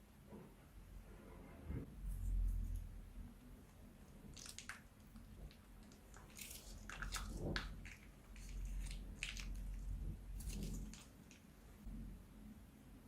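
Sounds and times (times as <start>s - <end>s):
slime crackling and squishing: 4.1s - 11.5s.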